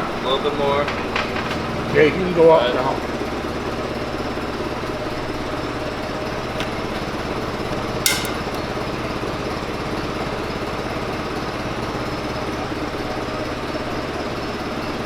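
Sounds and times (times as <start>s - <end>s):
sharp metallic clank: 8.1s - 8.6s.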